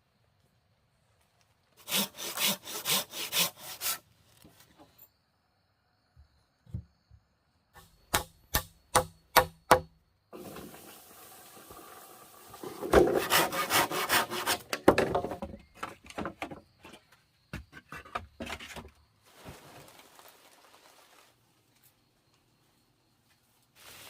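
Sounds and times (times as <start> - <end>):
hand saw cutting wood: 1.8 - 4.0, 12.6 - 14.8
steady hiss: 10.3 - 12.8.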